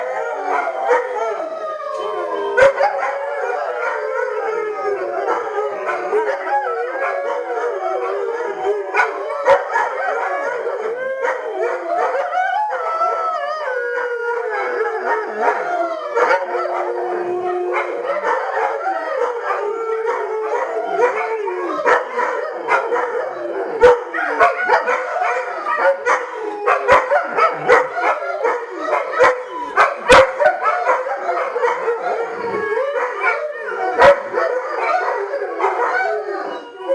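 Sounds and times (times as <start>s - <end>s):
dogs howling in chorus: 0.0s - 36.9s
dogs yipping: 17.7s - 36.9s.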